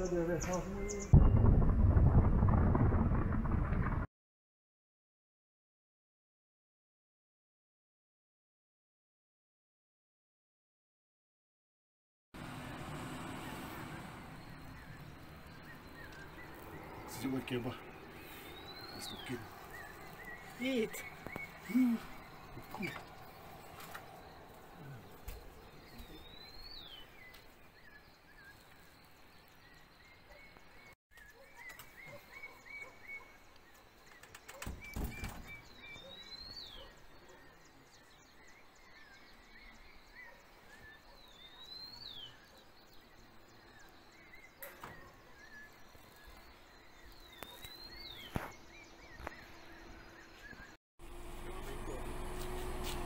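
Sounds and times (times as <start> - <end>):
bird chirps: 0.0 - 1.6, 13.4 - 50.8.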